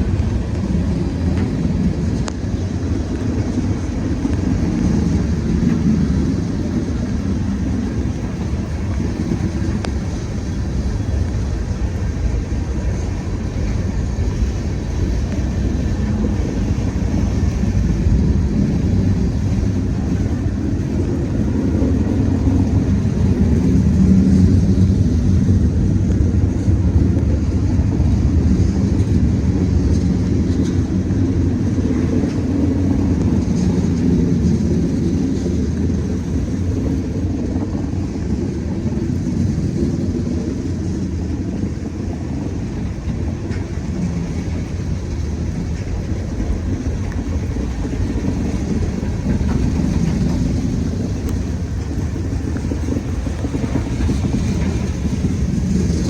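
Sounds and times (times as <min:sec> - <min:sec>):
freight train rumbling: 0:00.0 - 0:56.0.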